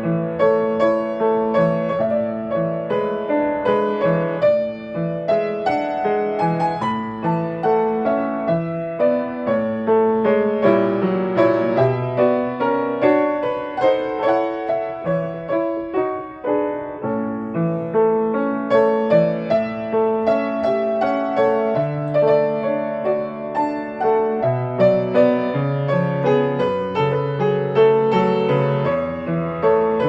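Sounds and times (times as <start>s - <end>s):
solo piano melody: 0.0s - 30.0s.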